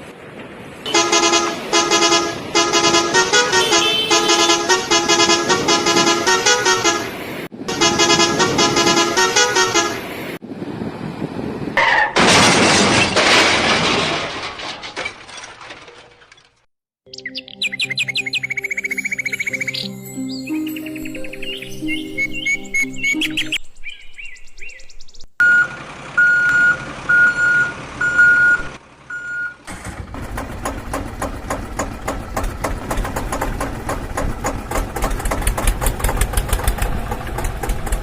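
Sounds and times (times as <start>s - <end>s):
vehicle horn beeping a tune: 0.9s - 10.1s.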